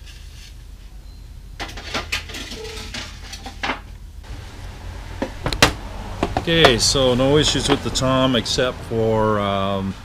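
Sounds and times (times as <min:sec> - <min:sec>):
knocks on wooden drum shell: 0:05.2 - 0:06.8.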